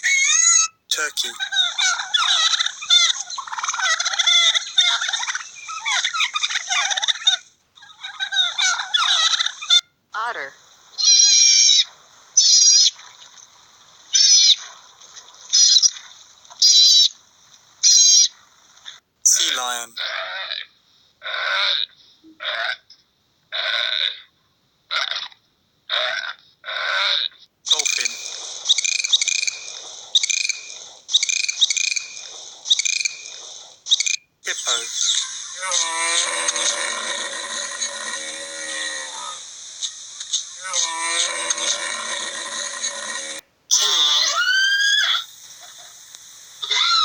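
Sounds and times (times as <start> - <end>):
otter high-pitched calls: 0.0 - 9.9, 10.9 - 17.2, 17.8 - 19.9, 27.7 - 46.0, 46.6 - 47.0
dolphin clicks and whistles: 27.9 - 34.3, 43.7 - 47.0.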